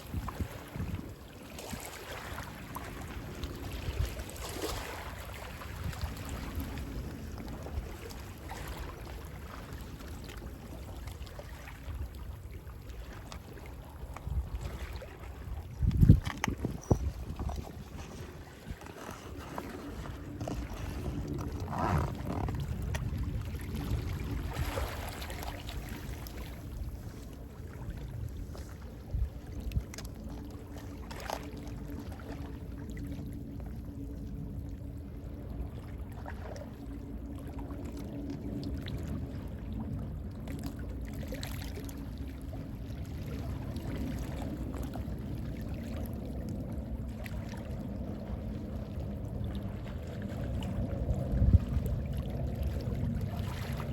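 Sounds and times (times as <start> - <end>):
sea waves washing in: 0.0 - 29.4
sea wind: 0.0 - 53.9.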